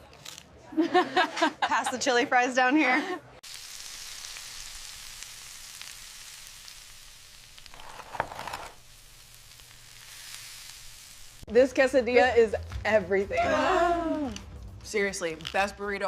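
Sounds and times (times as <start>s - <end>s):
food sizzling: 3.4s - 16.0s.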